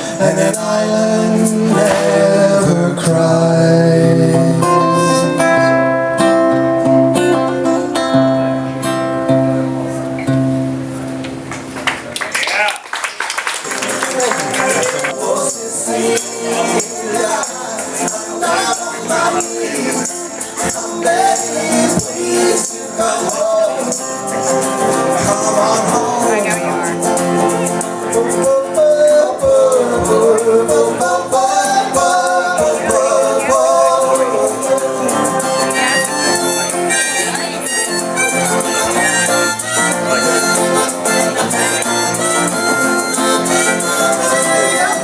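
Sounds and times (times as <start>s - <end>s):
guitar-like accompaniment: 0.0s - 12.2s, 13.6s - 45.0s
rattling percussion: 13.8s - 25.5s.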